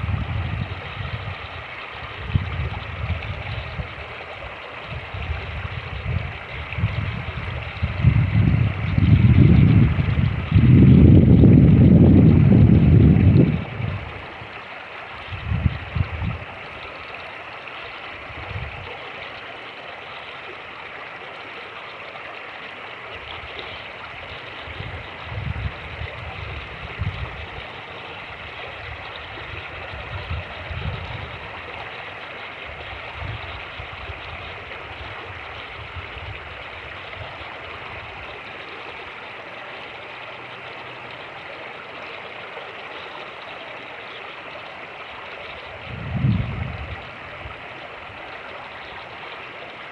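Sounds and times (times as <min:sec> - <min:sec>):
wind buffeting microphone: 0:00.0 - 0:14.6, 0:15.2 - 0:16.6, 0:18.2 - 0:19.0, 0:23.2 - 0:31.9, 0:32.7 - 0:38.4, 0:45.6 - 0:49.2
creek rushing: 0:00.0 - 0:49.9.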